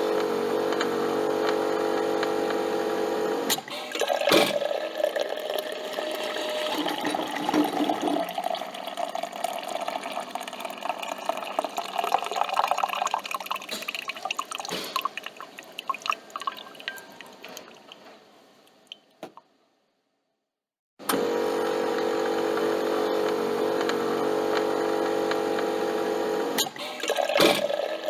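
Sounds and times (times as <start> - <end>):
coffee machine motor hum: 0.0 - 8.2, 21.0 - 28.0
liquid dripping into cup: 6.8 - 18.0.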